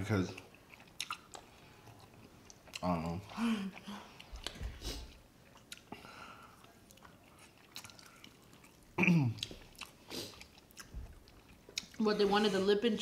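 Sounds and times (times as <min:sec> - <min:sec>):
people chewing: 0:00.0 - 0:13.0
wet mouth smacks and clicks: 0:00.8 - 0:01.5.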